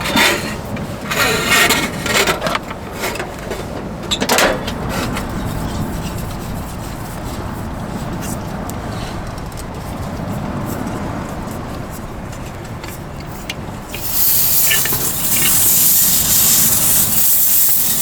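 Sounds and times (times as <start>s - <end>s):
gas hissing from heater: 13.9s - 18.0s.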